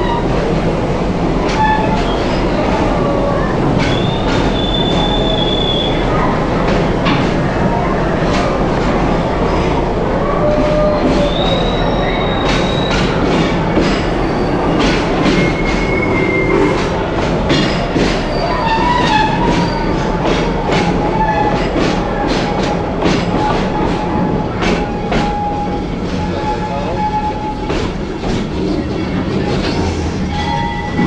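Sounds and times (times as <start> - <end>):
wheels clicking over rails: 0.0 - 25.4
train rumbling on track: 0.0 - 31.0
thin wheel squeal: 14.1 - 17.0.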